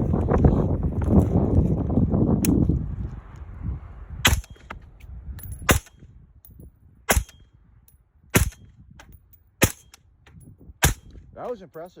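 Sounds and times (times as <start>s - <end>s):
suppressed rifle shots: 7.1s - 7.4s, 8.4s - 8.6s, 9.6s - 10.0s, 10.8s - 11.2s.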